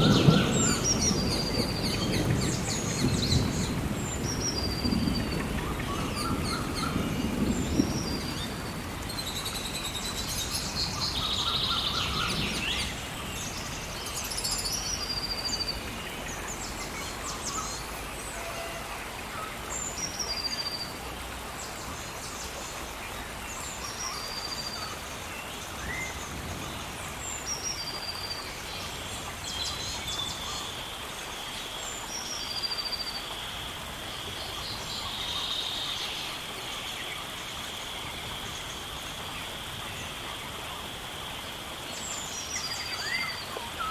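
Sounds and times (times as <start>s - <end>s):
birds chirping: 0.0s - 21.0s
rain hiss: 0.0s - 43.9s.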